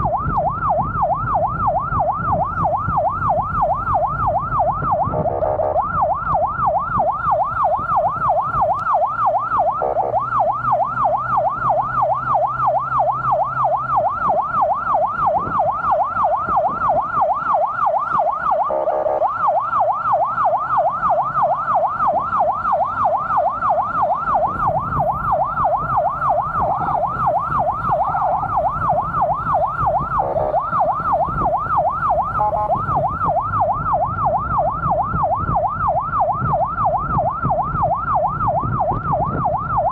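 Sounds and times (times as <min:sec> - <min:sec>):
engine and road noise: 0:00.0 - 0:39.9
siren yelping: 0:00.0 - 0:39.9
horn blasts: 0:32.3 - 0:32.9.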